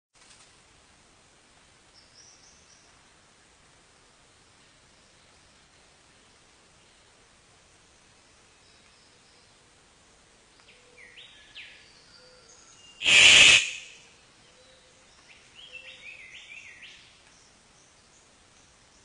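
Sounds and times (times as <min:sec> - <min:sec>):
birds whistling rising notes: 0:13.0 - 0:14.0
loud harsh burst: 0:13.0 - 0:14.0.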